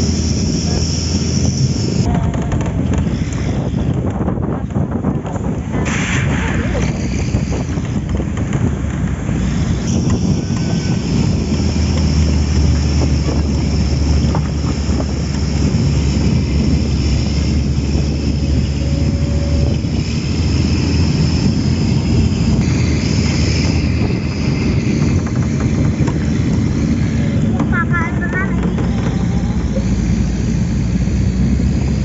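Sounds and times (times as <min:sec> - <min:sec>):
high-pitched whine: 0:00.0 - 0:04.0, 0:09.2 - 0:32.0
vehicle engine and road rumble: 0:00.0 - 0:32.0
wind buffeting microphone: 0:00.0 - 0:32.0.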